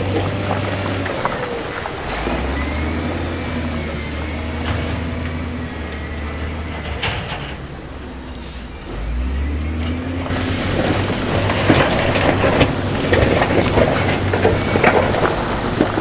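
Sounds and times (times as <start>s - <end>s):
diesel machinery engine running: 0.0s - 16.0s
metal knocks and clanks: 4.4s - 8.5s.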